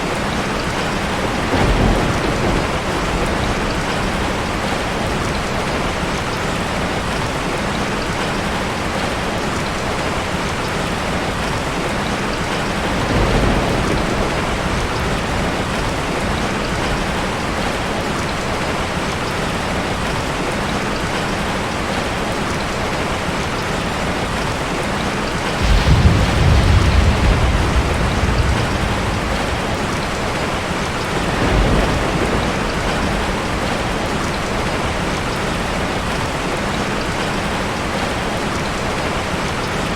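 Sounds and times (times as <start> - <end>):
heavy rain falling: 0.0 - 39.9
thunder rolling: 0.7 - 5.7, 12.6 - 18.0, 25.4 - 36.3.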